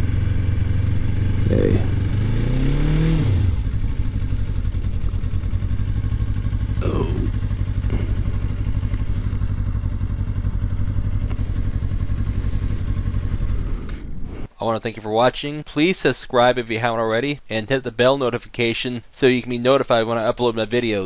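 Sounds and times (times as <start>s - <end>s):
motorcycle engine idling: 0.0s - 2.8s, 3.4s - 14.5s.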